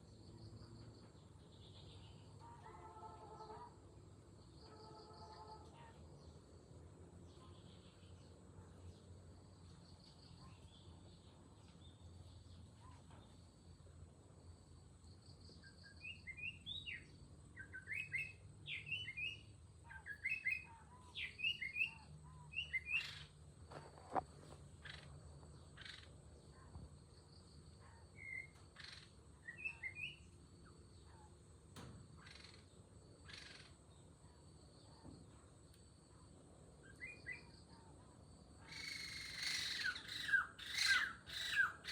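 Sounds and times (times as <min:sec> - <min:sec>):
bird chirping: 0:00.0 - 0:02.4, 0:15.0 - 0:23.4, 0:24.1 - 0:31.3, 0:36.8 - 0:37.9, 0:38.6 - 0:41.9.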